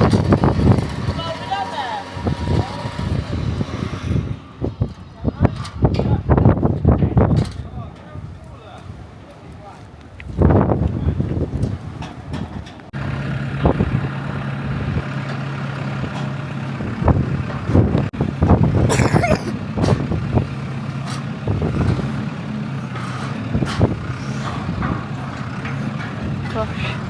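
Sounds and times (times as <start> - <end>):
diesel engine running: 13.0 - 27.0.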